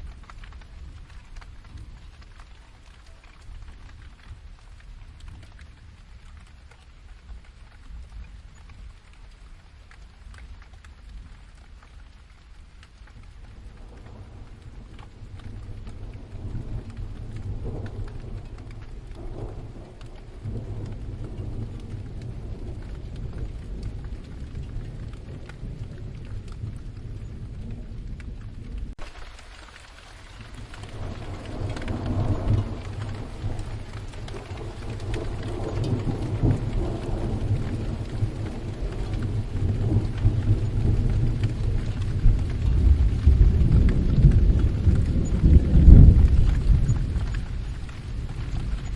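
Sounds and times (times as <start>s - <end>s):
steady rain: 0.0s - 48.9s
rolling thunder: 13.5s - 29.4s, 30.2s - 48.9s.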